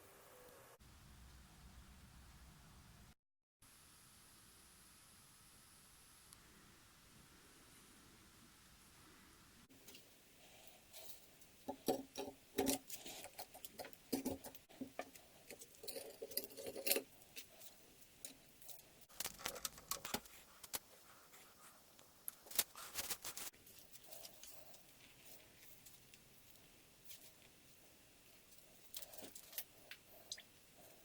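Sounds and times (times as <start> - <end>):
metal tools clinking and scraping: 15.5 - 18.8.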